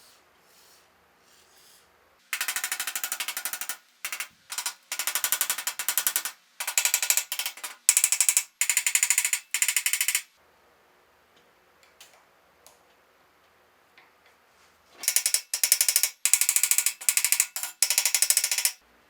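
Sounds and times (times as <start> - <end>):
ratchet wrench clicking: 2.4 - 10.3, 15.0 - 18.8.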